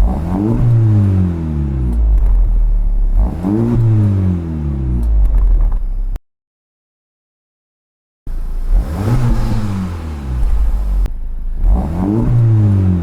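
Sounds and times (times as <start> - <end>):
car engine revving: 0.0 - 5.5, 8.3 - 13.0.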